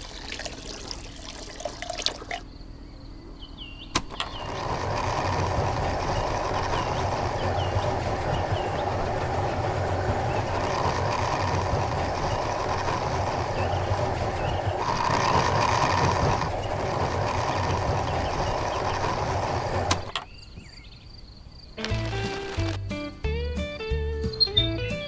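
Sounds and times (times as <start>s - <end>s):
motor switch click: 3.8s - 4.5s
small motor humming: 3.8s - 20.3s.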